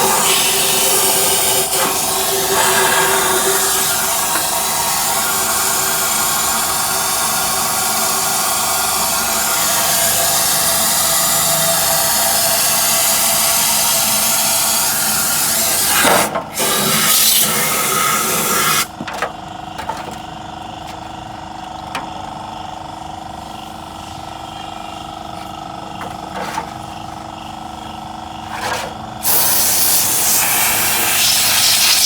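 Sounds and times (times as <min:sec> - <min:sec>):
loud steady hiss: 0:29.2 - 0:32.0.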